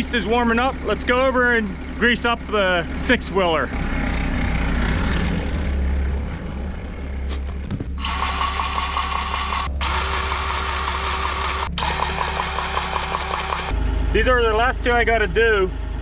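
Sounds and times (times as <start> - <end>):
engine idling low hum: 0.0 - 16.0
grease gun motor whine: 8.0 - 13.8.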